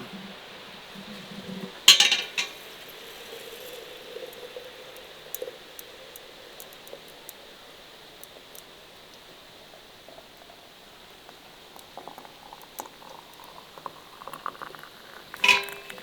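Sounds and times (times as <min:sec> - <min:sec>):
kitchenware clattering: 0:01.9 - 0:02.6, 0:15.4 - 0:16.0.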